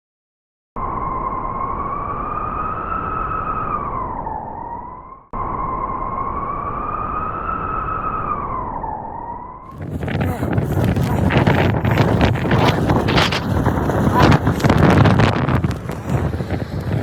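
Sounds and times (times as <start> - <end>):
wind rushing: 9.7 - 17.0.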